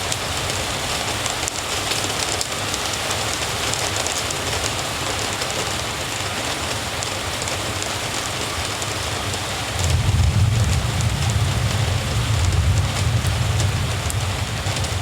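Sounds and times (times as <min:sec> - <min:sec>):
rain hissing: 0:06.4 - 0:15.0
low rumble: 0:09.8 - 0:15.0.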